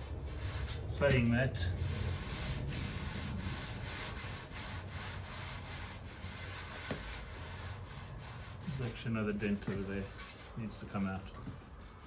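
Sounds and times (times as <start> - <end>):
sanding strokes on sheet steel: 1.7 - 10.6.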